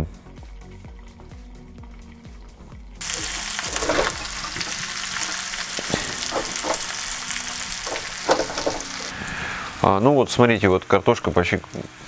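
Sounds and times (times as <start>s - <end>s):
potatoes frying in oil: 3.0s - 12.0s
metal fork scraping pan: 3.6s - 7.1s.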